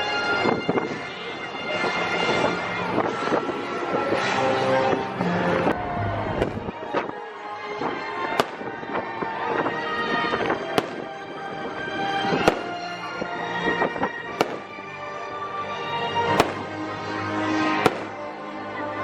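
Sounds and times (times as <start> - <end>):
music over loudspeakers: 2.7 - 19.0
fireworks cracking and popping: 8.3 - 11.2, 12.2 - 13.0, 13.7 - 14.8, 16.3 - 16.8, 17.8 - 18.3.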